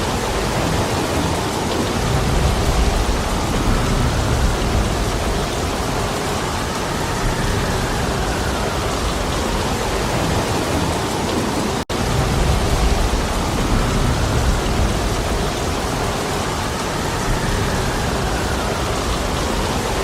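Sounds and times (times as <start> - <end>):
heavy rain hiss: 0.0 - 20.0
low rumble: 2.1 - 9.6, 12.1 - 20.0.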